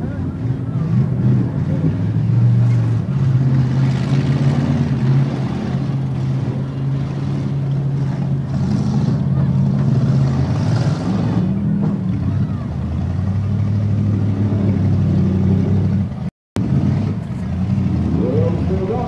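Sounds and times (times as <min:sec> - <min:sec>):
car engines running: 0:00.0 - 0:19.0.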